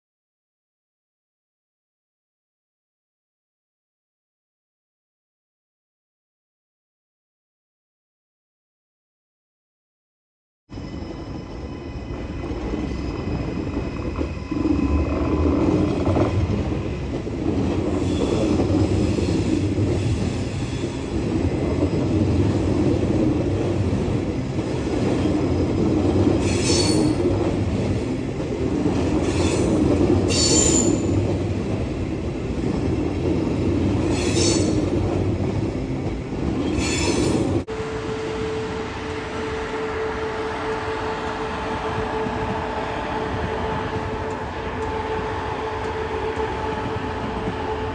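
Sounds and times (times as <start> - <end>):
electric train passing with whine: 10.7 - 47.9
train wheels rumbling on rail: 10.8 - 47.9
high-pitched wheel squeals: 26.4 - 27.2, 29.2 - 31.2, 34.1 - 34.8.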